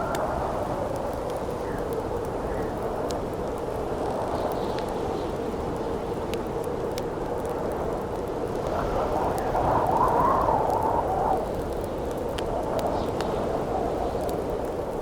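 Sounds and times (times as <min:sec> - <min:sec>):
campfire crackling and popping: 0:00.0 - 0:15.0
wind rushing and howling: 0:07.4 - 0:15.0.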